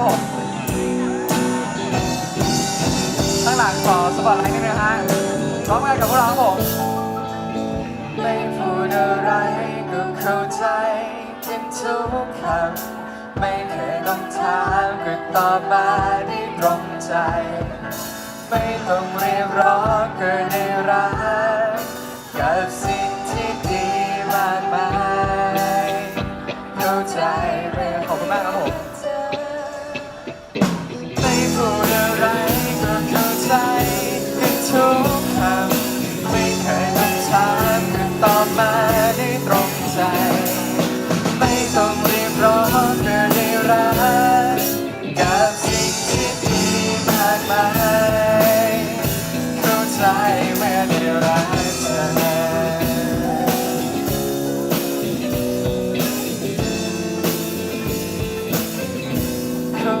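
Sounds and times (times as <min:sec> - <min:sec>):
drum kit steady beat: 0:00.0 - 0:09.3, 0:11.5 - 0:29.0, 0:30.0 - 1:00.0
wavering lead melody: 0:00.0 - 0:12.0.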